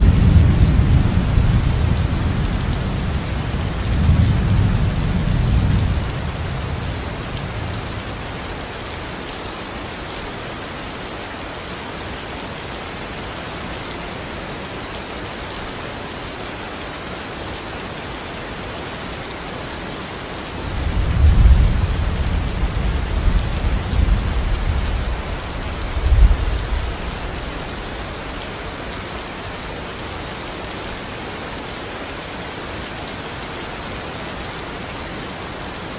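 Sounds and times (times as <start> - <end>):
thunder rumbling: 0.0 - 8.5, 20.6 - 27.8
steady rain falling: 0.0 - 35.9.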